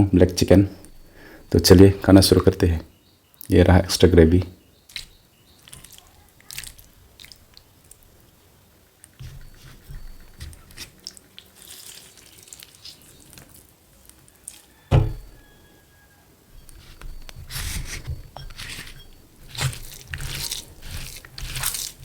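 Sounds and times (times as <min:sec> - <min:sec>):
wet food squishes: 0:04.8 - 0:08.4, 0:09.0 - 0:15.6, 0:16.6 - 0:22.0
dull thump: 0:14.9 - 0:15.4.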